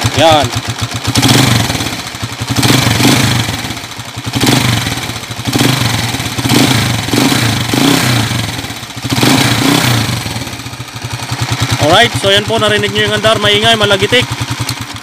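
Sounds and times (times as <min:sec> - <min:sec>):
motorcycle engine revving: 0:00.0 - 0:15.0
clattering engine tick: 0:11.4 - 0:15.0.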